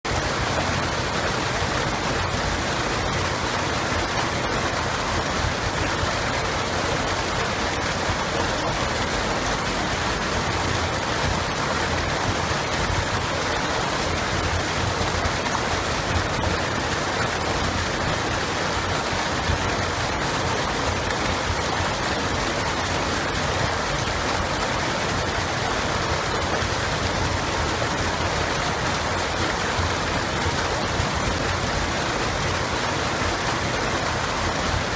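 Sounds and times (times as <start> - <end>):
running water flowing: 0.0 - 34.9.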